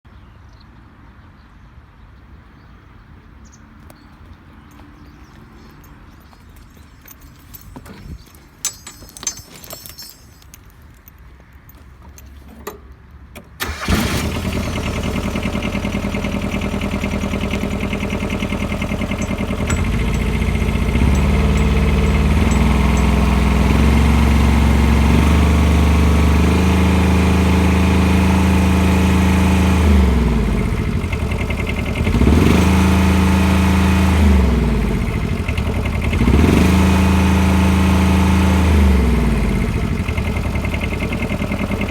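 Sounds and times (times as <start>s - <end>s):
diesel engine starting and running: 11.7s - 41.9s.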